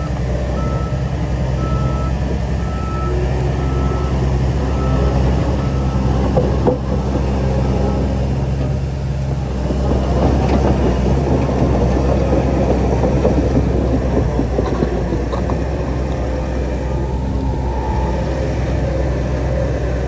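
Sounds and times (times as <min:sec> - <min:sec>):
bulldozer diesel engine running: 0:00.0 - 0:20.0
steel tracks clattering: 0:05.4 - 0:18.8.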